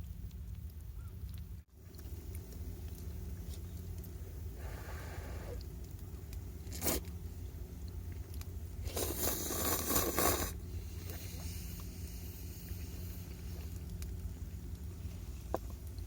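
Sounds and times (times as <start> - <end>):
rough scraping: 8.8 - 12.2.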